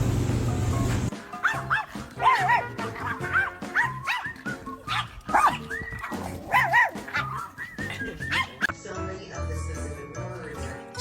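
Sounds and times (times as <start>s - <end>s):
background music: 0.3s - 11.0s
dog yipping and whining: 1.3s - 8.7s.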